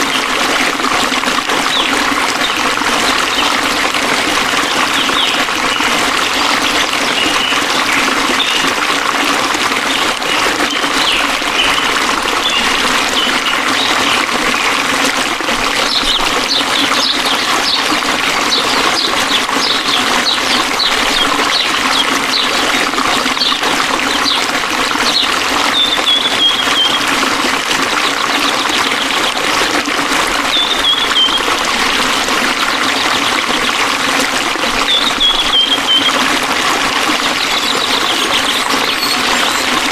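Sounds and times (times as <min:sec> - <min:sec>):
stream trickling and splashing: 0:00.0 - 0:39.9
small birds chirping: 0:04.6 - 0:08.7, 0:09.9 - 0:14.8, 0:15.8 - 0:27.1, 0:30.5 - 0:31.5, 0:37.2 - 0:39.9.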